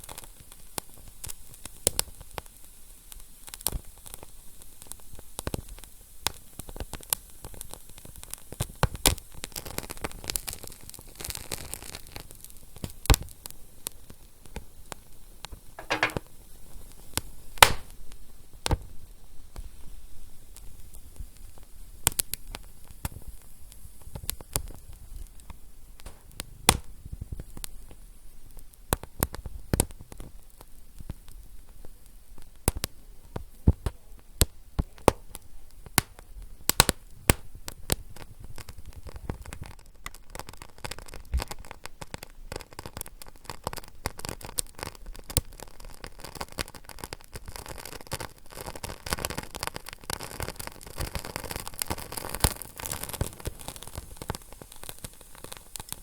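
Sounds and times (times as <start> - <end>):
soft steady hiss: 0.0 - 56.0
wood fire crackling: 15.8 - 16.3, 17.1 - 18.8, 20.5 - 56.0.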